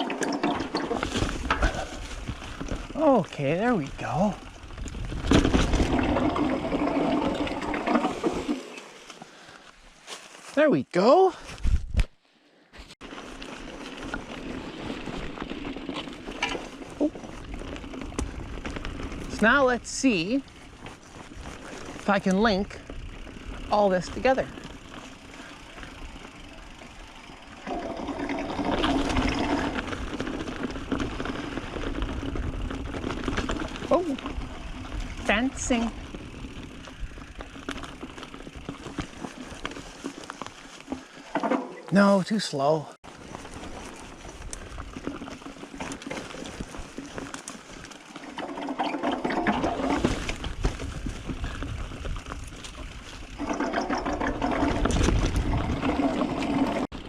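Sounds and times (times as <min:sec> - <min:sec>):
wind rumble: 0:00.0 - 0:08.5, 0:13.2 - 0:40.5, 0:47.8 - 0:57.0
bike tyres on dirt trail: 0:00.0 - 0:57.0.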